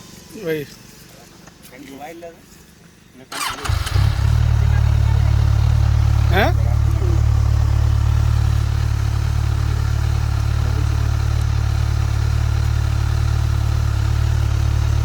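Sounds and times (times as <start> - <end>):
motorcycle engine low rumble: 3.4 - 15.0.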